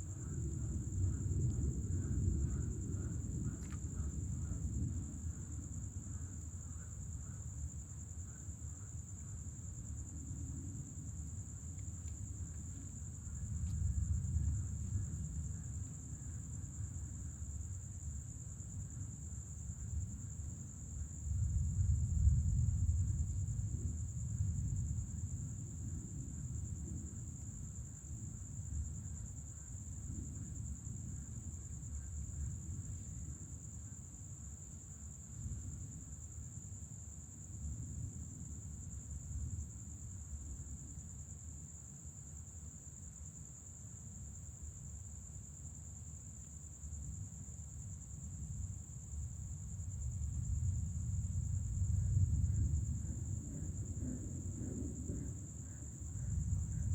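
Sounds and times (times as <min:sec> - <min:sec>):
distant thunder rumbling: 0:00.0 - 0:06.1, 0:50.0 - 0:56.9
crickets trilling: 0:00.0 - 0:56.9.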